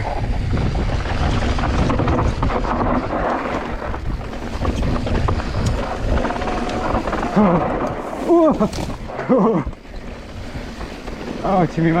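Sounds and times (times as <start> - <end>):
bike tyres rumbling on dirt: 0.0 - 12.0
wind buffeting microphone: 0.0 - 12.0
bike clicks and knocks: 0.1 - 11.4.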